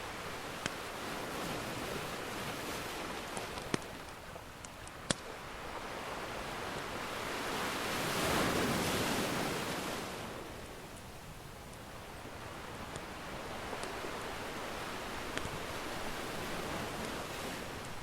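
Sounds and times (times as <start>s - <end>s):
ocean surf washing: 0.0s - 18.0s
wood fire crackling and popping: 0.3s - 0.9s, 1.7s - 5.7s, 10.9s - 18.0s.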